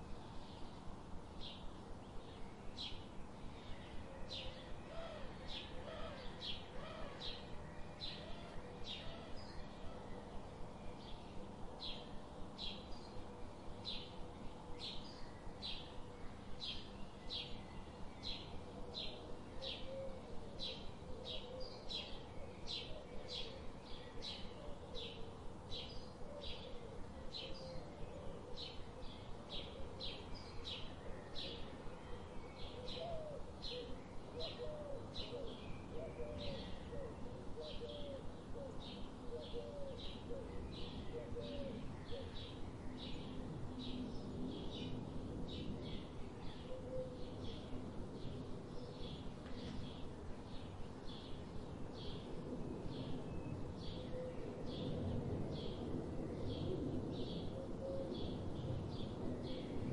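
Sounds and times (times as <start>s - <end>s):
lower wavering bird calls: 2.4s - 12.1s, 12.7s - 45.0s, 45.6s - 51.4s.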